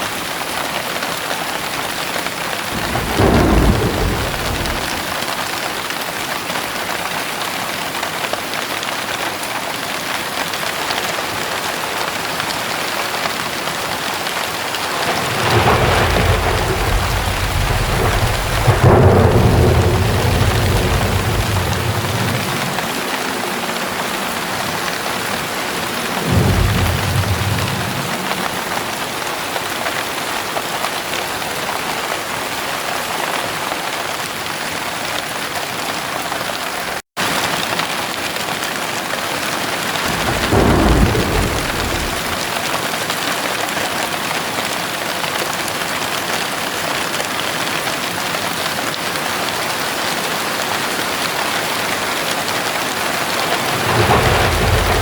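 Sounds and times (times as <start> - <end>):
heavy rain pouring: 0.0 - 55.0
low rumbles of thunder: 2.5 - 5.4, 14.7 - 29.7, 40.0 - 42.7, 53.2 - 55.0.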